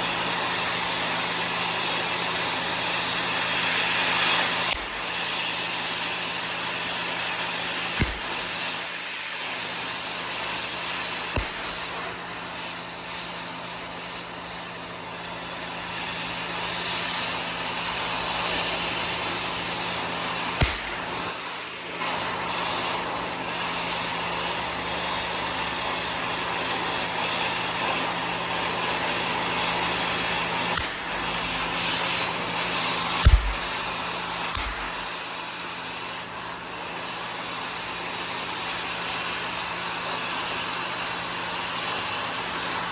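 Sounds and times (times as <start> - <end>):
torch jet hissing: 0.0 - 42.9
sharp thumps: 8.0 - 8.5, 20.6 - 21.2, 33.2 - 33.9, 34.5 - 35.1.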